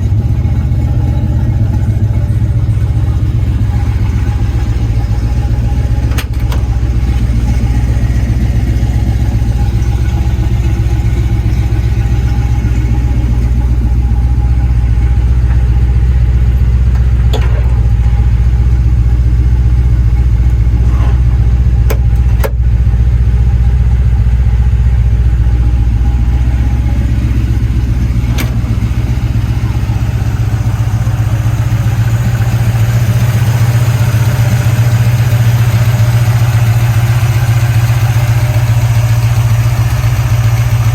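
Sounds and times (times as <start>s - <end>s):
truck engine idling: 0.0s - 40.9s.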